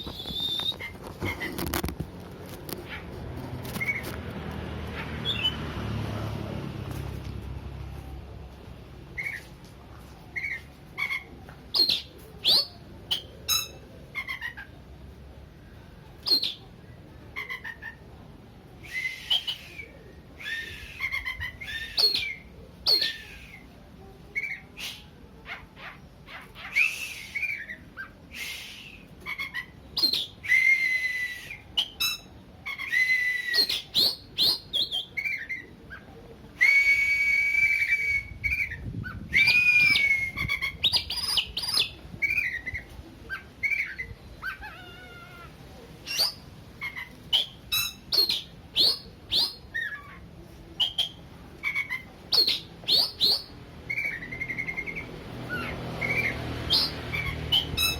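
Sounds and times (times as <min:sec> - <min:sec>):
magpie-robin singing: 0:05.0 - 0:05.6, 0:09.2 - 0:09.5, 0:10.3 - 0:14.8, 0:16.2 - 0:18.0, 0:19.0 - 0:23.7, 0:24.3 - 0:28.3, 0:29.2 - 0:36.1, 0:37.8 - 0:44.8, 0:46.0 - 0:57.9.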